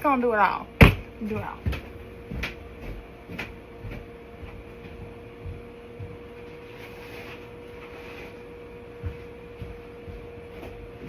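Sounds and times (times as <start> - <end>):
steady hum: 0.0 - 11.0
soft low thumps: 0.8 - 6.6, 8.8 - 11.0.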